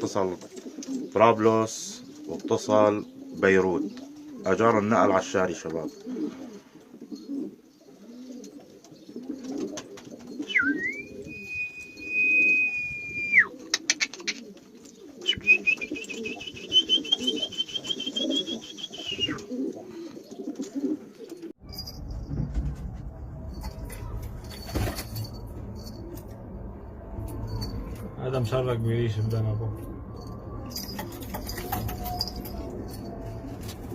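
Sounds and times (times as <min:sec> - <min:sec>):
pigeons cooing: 0:00.0 - 0:21.6, 0:29.7 - 0:33.9
long high whistles: 0:10.5 - 0:13.5, 0:15.3 - 0:19.4
low rumbling noise: 0:21.6 - 0:33.9.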